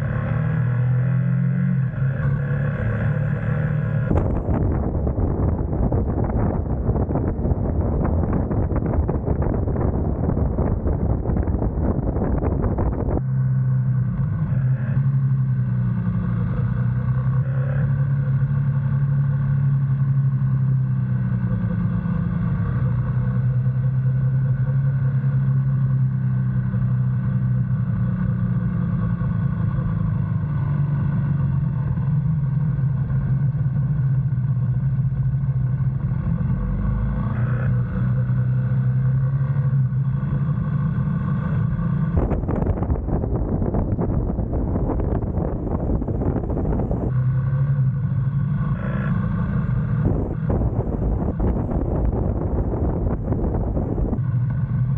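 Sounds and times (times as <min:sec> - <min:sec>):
motorcycle engine running: 0:00.0 - 0:54.9
wind rush: 0:04.1 - 0:13.6, 0:42.0 - 0:47.2, 0:49.5 - 0:54.4.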